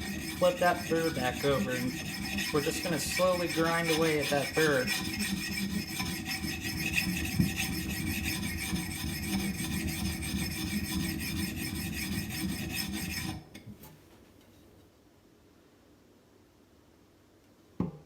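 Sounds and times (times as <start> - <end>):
sharpening stone rasping on axe: 0.0 - 13.5.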